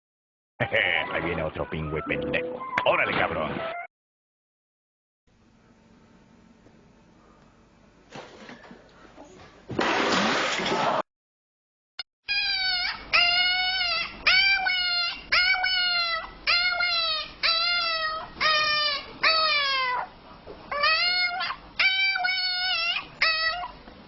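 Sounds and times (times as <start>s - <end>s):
animal crying out: 12.3s - 20.1s, 20.7s - 23.8s.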